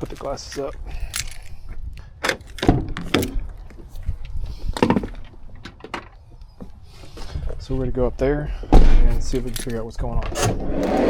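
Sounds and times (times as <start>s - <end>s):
wooden knocks and clatters: 4.7s - 6.2s.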